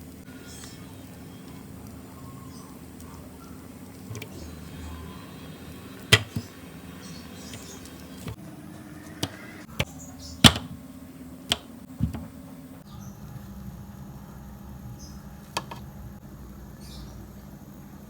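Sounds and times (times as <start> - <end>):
steady low hum: 0.0 - 18.0
knocks and clicks of handled objects: 6.1 - 6.5, 9.2 - 10.8.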